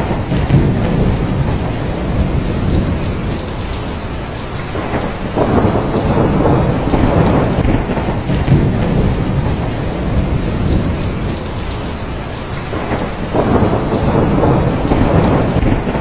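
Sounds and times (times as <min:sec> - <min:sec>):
heavy rain: 0:00.0 - 0:16.0
low rumble of thunder: 0:00.0 - 0:16.0.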